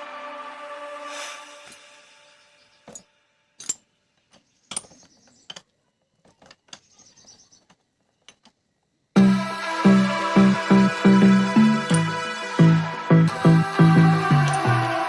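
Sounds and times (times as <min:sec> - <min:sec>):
electronic music with a beat: 0:00.0 - 0:02.0, 0:09.2 - 0:15.0
metallic clicks of tools: 0:02.9 - 0:03.9.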